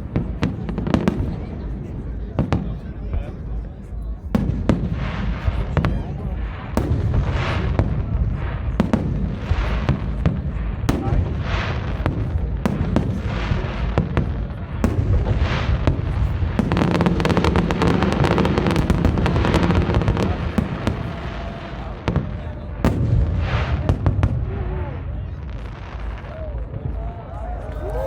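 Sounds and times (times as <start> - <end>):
fireworks crackling: 0.0 - 28.0
firework shells booming: 4.3 - 27.4.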